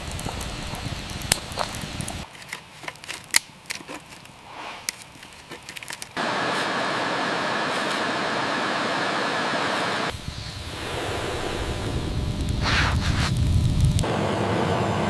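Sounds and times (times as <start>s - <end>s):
steady loud hiss: 0.0s - 2.3s, 6.1s - 15.0s
wood fire crackling and popping: 0.0s - 7.0s, 10.0s - 14.1s.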